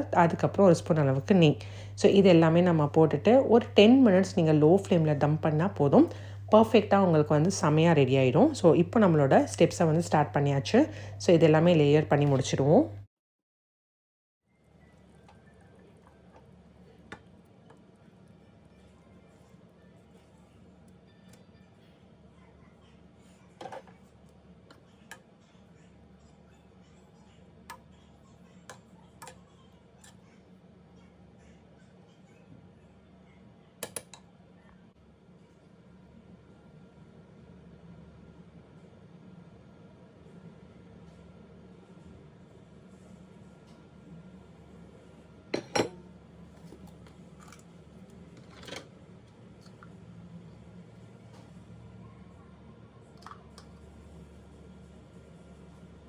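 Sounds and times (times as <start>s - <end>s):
low steady hum: 0.0s - 13.1s, 34.4s - 56.0s
utensil clinking on cooking pot: 45.6s - 46.2s.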